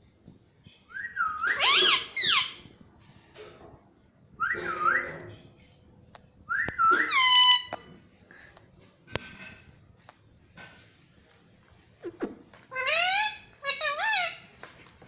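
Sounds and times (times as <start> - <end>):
parrot whistled calls: 0.9 - 2.6, 4.4 - 5.2, 6.5 - 7.7.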